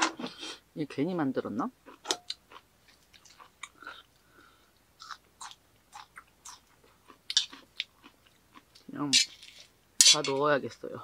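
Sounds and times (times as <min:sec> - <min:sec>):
person chewing crunchy salad: 0:01.8 - 0:09.7.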